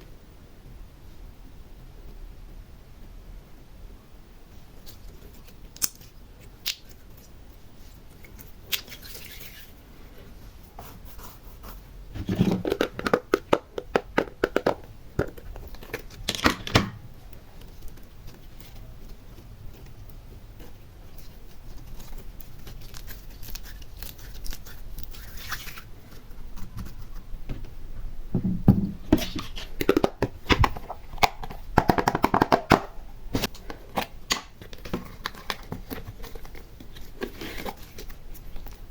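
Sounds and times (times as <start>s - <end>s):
slime crackling and popping: 5.4s - 7.4s.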